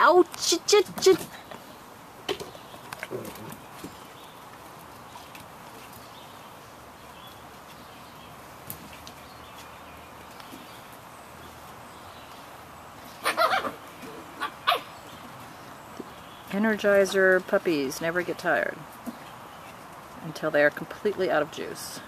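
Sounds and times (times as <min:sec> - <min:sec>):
puppies yapping: 0:13.1 - 0:15.4.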